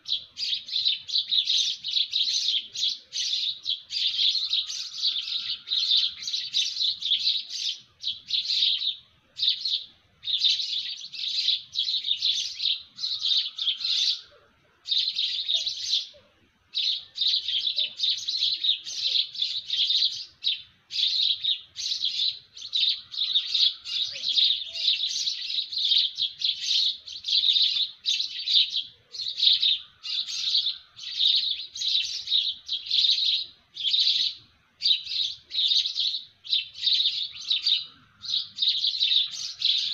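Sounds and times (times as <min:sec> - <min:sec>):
lower bird call: 0:00.0 - 0:16.2
songbirds chirping: 0:00.0 - 0:39.9.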